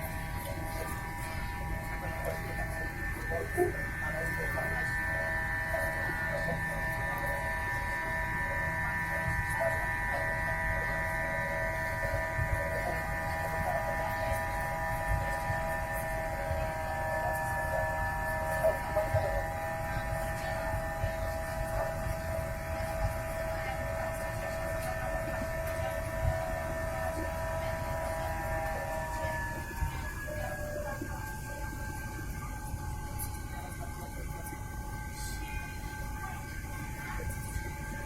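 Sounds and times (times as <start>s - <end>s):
jet engine whine in cabin: 0.0s - 38.0s.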